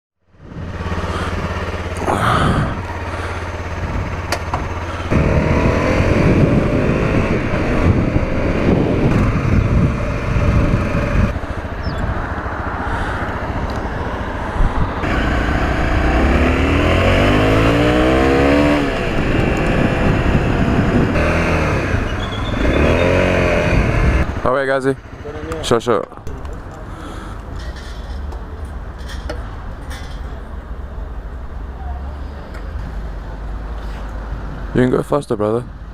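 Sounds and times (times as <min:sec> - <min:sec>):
motorcycle engine revving: 0:00.4 - 0:28.2.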